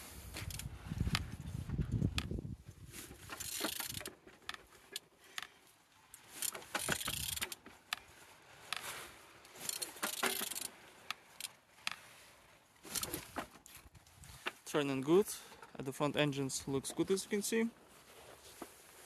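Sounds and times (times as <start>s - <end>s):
engine turned over by hand: 3.0s - 4.8s, 6.3s - 7.6s, 9.6s - 10.7s.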